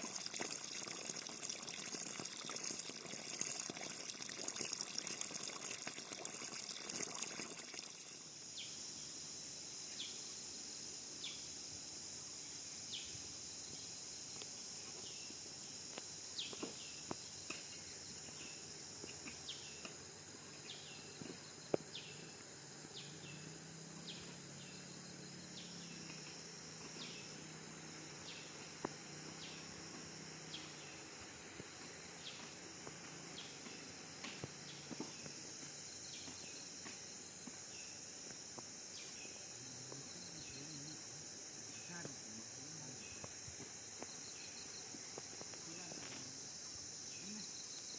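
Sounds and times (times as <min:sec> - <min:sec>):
rush of water-like noise: 0:00.0 - 0:08.3
high-pitched insect chorus: 0:00.0 - 0:47.9.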